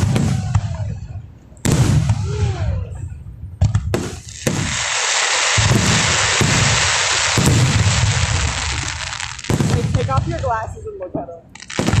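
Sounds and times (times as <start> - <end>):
firework booms: 0.0 - 11.0, 11.6 - 12.0
firework crackling: 3.8 - 12.0.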